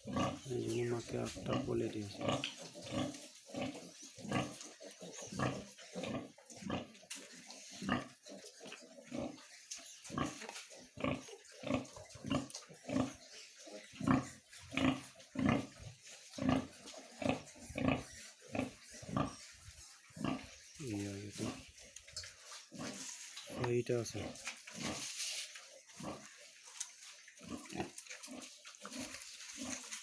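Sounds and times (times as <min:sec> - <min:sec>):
pig grunting: 0:00.0 - 0:07.0, 0:07.7 - 0:09.5, 0:10.1 - 0:25.1.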